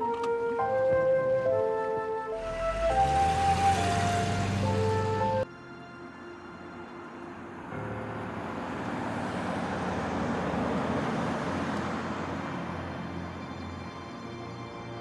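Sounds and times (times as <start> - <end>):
vehicle passing by: 2.4 - 5.4, 8.0 - 13.2.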